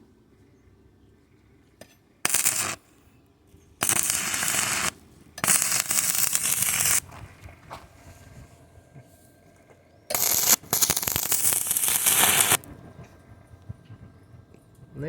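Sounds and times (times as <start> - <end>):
gas torch flame hissing: 2.2 - 2.8, 3.8 - 8.1, 10.1 - 12.7.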